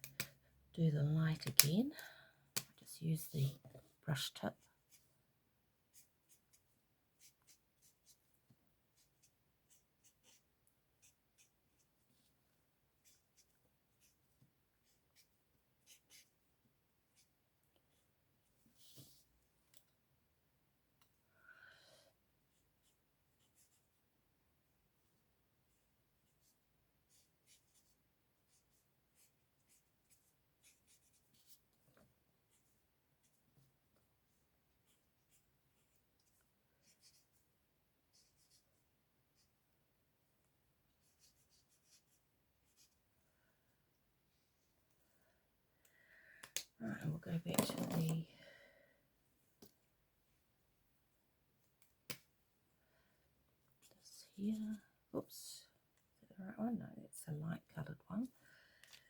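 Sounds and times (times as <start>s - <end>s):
marker scratching on card: 9.0s - 11.9s.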